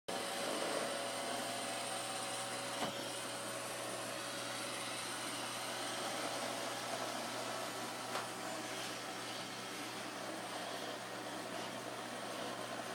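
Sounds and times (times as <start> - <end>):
robot vacuum running: 0.1 - 12.9.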